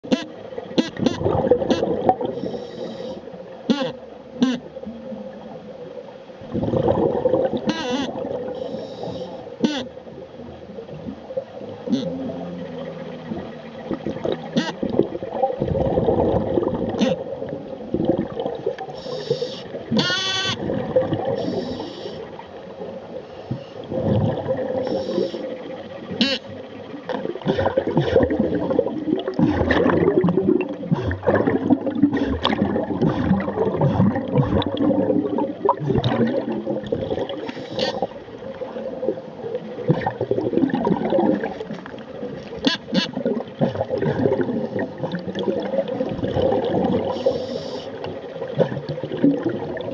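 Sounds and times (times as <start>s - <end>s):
underwater gurgling: 0.0s - 49.9s
wavering underwater voice sounds: 0.1s - 4.7s, 8.8s - 9.9s, 11.9s - 15.0s, 24.8s - 26.6s.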